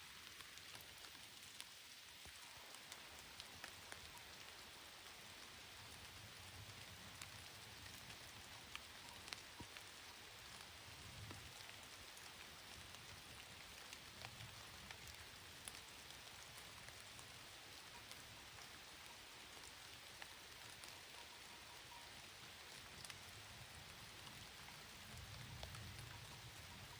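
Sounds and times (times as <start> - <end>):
faint rain: 0.0 - 26.9
raindrops ticking: 0.0 - 26.9.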